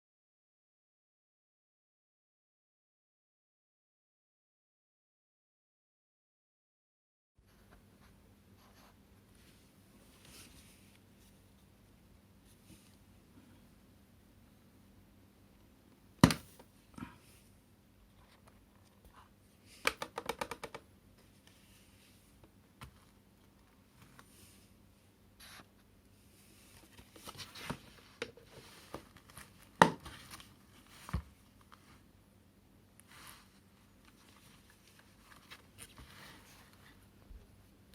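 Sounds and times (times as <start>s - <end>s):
plastic parts clicking and knocking: 19.8s - 20.8s.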